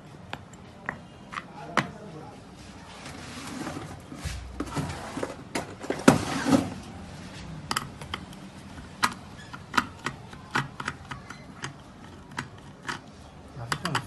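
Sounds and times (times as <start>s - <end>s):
grinder parts clicking and knocking: 7.6s - 14.0s.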